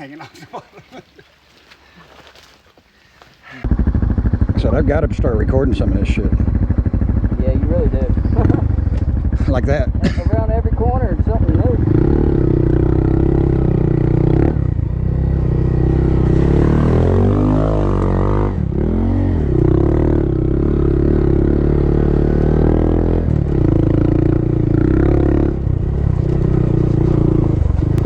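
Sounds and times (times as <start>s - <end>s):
small motorbike engine running: 3.6s - 17.2s.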